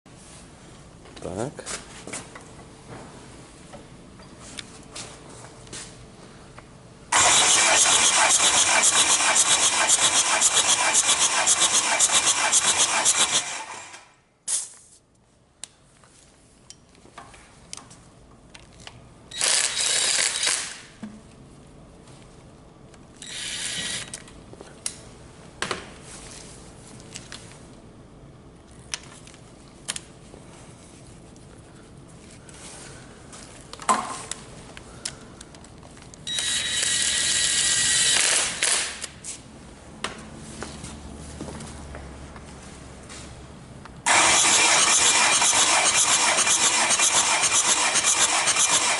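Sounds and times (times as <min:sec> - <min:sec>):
diesel engine cranking on starter: 0:07.1 - 0:14.1, 0:44.1 - 0:48.9
short bursts of noise: 0:07.1 - 0:14.8.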